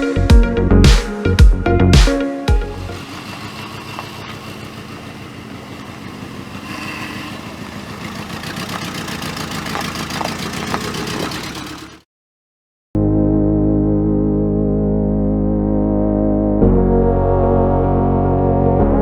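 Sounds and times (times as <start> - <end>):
car engine idling: 2.5 - 12.0.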